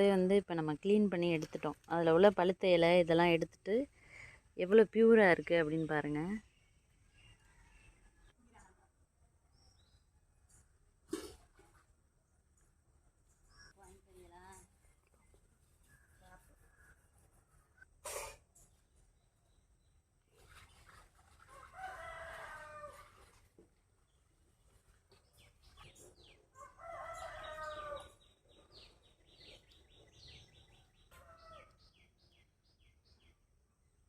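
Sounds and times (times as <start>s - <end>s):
rooster crowing: 21.6s - 23.1s, 26.6s - 28.2s
small birds chirping: 24.0s - 33.4s.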